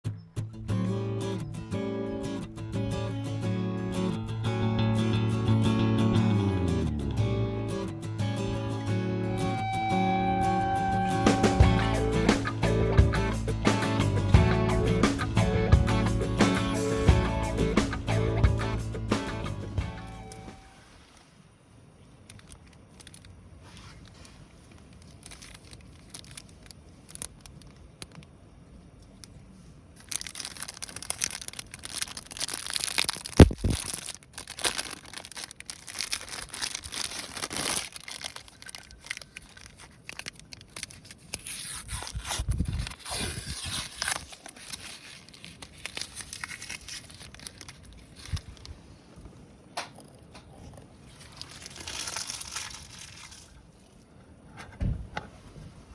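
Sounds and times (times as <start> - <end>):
kindling crinkling and snapping: 22.1 - 54.5
campfire crackling and popping: 30.0 - 41.5.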